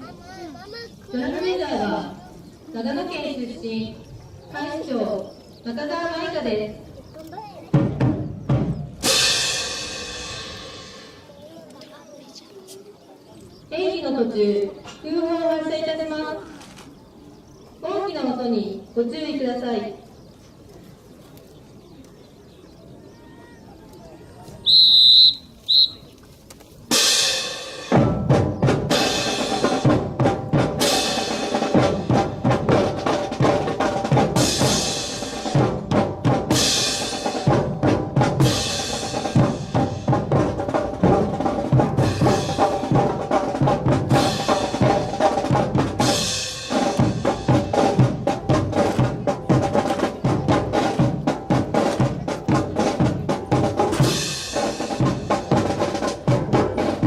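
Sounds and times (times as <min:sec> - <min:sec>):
snare and bass drums cadence: 0:07.7 - 0:11.3, 0:26.9 - 0:57.0.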